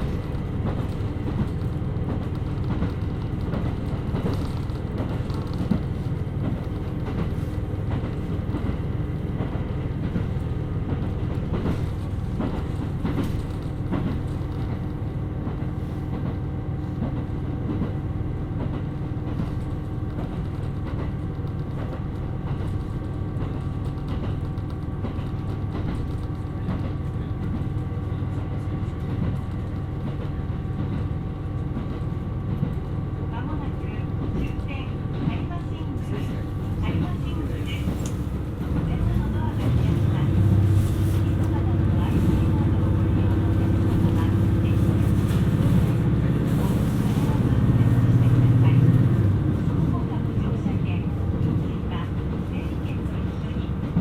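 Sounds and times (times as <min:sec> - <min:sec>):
rail-joint clicks: 0:00.0 - 0:16.4, 0:17.0 - 0:27.9, 0:28.9 - 0:40.6
diesel railcar rumbling: 0:00.0 - 0:54.0.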